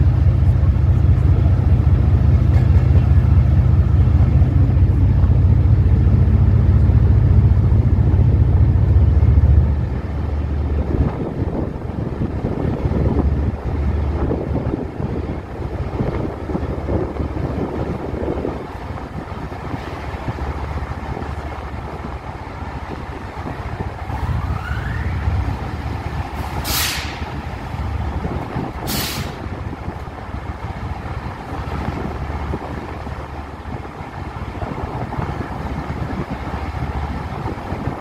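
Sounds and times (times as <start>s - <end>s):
train rumbling: 0.0s - 38.0s
short sharp hisses: 26.5s - 27.3s, 28.9s - 29.4s.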